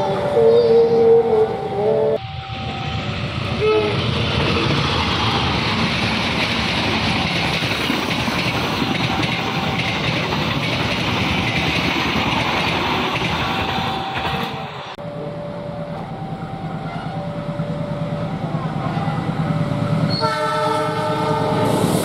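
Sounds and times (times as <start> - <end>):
train wheels clattering on track: 4.0 - 14.7.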